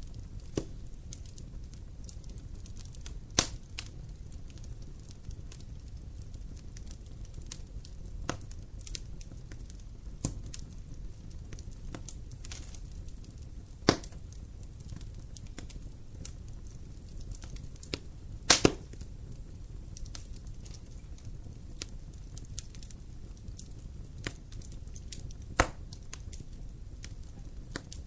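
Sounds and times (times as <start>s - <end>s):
fireplace fire crackling: 0.0s - 28.0s
loud wood pops: 13.9s - 14.1s, 18.5s - 18.9s, 25.6s - 25.8s.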